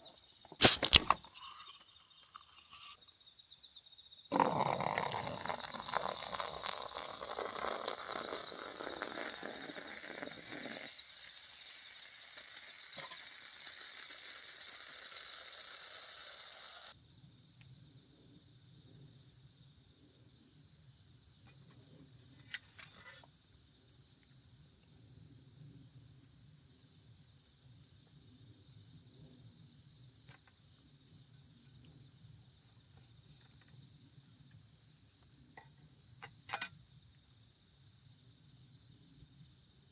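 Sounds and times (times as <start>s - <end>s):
crickets chirping: 0.0s - 39.9s
steady hiss: 0.6s - 1.7s, 4.6s - 17.0s.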